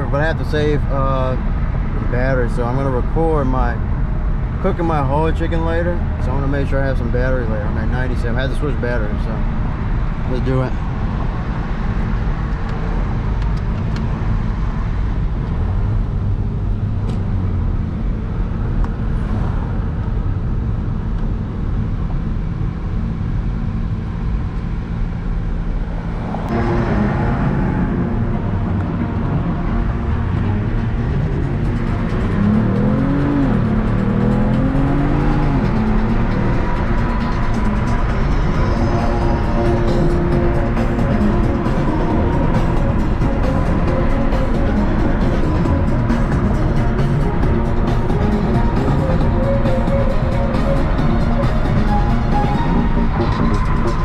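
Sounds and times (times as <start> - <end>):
car engine rumble: 0.0 - 54.0
road noise: 0.0 - 54.0
rising and falling tones: 25.9 - 54.0.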